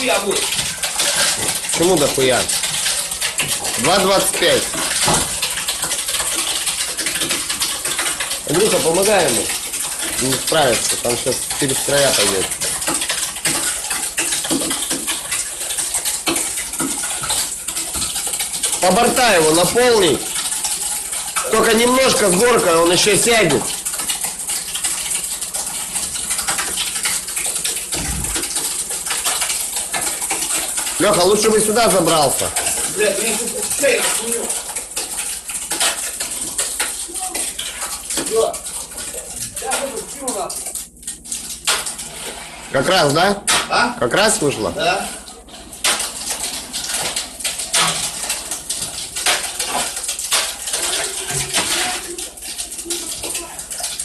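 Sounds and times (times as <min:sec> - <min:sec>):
wet concrete crackling and sloshing: 0:00.0 - 0:54.0
shovels scraping wet concrete: 0:39.5 - 0:40.4, 0:49.2 - 0:52.2.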